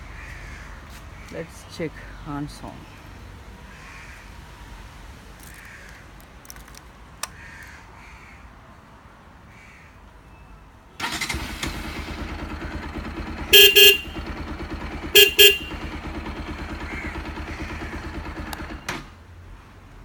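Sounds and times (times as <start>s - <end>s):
motorcycle engine idling: 11.0s - 19.2s
horn blasts: 13.4s - 16.1s.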